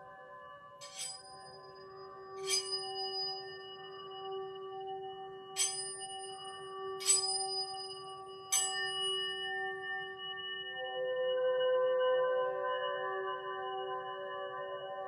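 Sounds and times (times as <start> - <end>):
singing bowl sustained tone: 0.0 - 15.0
singing bowl metallic strikes: 0.8 - 1.6, 2.4 - 3.9, 5.6 - 9.5.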